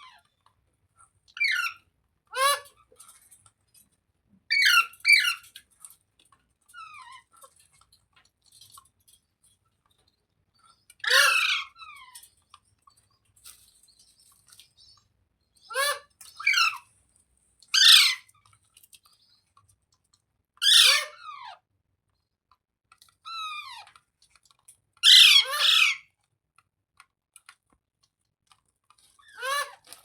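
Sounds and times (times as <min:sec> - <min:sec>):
parrot squawking: 0:01.4 - 0:02.7, 0:04.5 - 0:05.4, 0:11.0 - 0:12.0, 0:15.7 - 0:16.8, 0:17.8 - 0:18.3, 0:20.6 - 0:21.6, 0:25.0 - 0:26.0.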